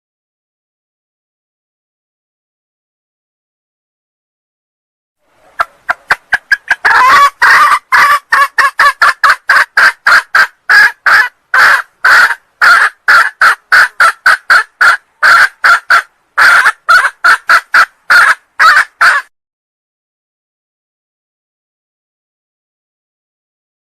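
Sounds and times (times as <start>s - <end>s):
hen clucking rapidly: 5.4s - 19.3s.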